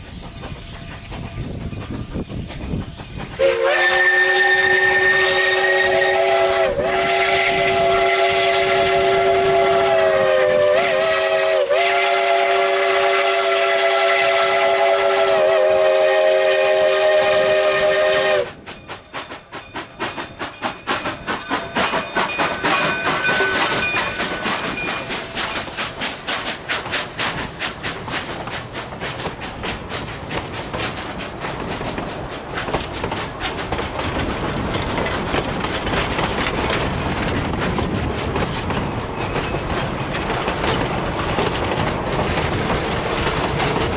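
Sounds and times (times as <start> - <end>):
train running rhythm: 0.0 - 43.9
steam locomotive whistle: 3.4 - 28.0.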